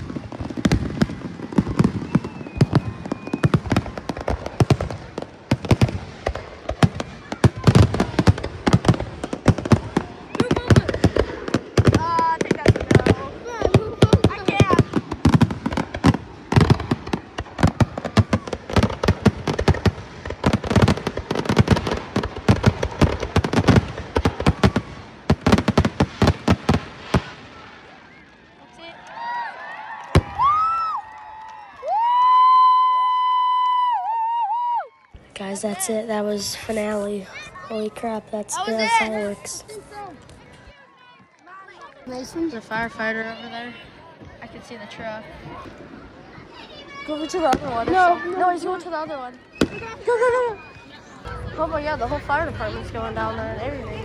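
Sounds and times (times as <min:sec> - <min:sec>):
fireworks bangs and crackles: 0:00.0 - 0:29.0, 0:30.0 - 0:33.9, 0:34.5 - 0:54.0
faint firework whistle: 0:01.4 - 0:04.5, 0:49.3 - 0:51.2.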